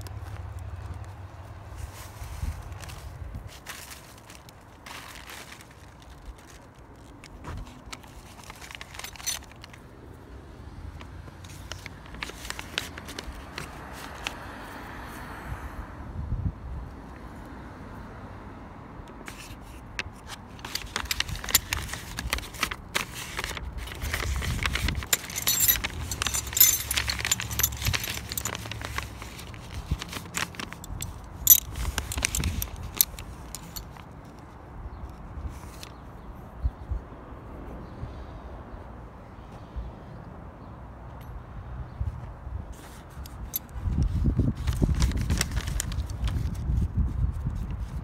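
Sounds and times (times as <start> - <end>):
small metal objects clinking: 20.6 - 34.0.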